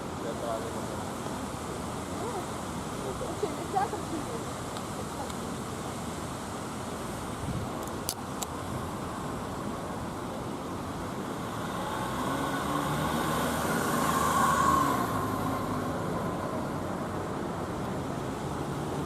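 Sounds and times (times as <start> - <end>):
background traffic: 0.0 - 19.0
vehicle passing by: 11.2 - 19.0.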